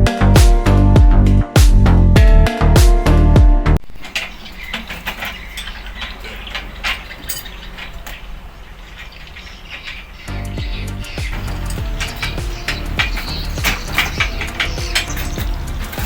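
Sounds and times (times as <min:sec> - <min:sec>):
music: 0:00.0 - 0:03.8, 0:10.3 - 0:16.0
metal parts clinking: 0:03.9 - 0:16.0.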